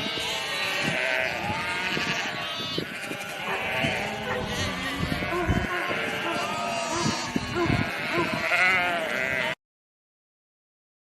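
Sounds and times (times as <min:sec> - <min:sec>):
sheep bleating: 0:00.0 - 0:09.6.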